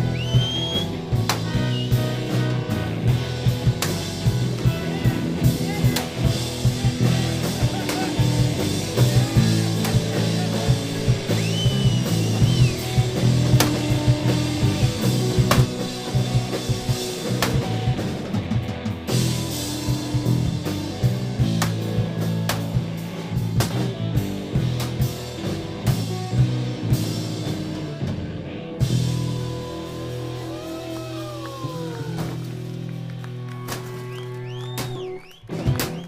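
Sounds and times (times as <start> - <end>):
drum hits: 0.0 - 25.2, 34.8 - 36.0
low bass notes: 0.0 - 36.0
rock music: 0.0 - 36.0.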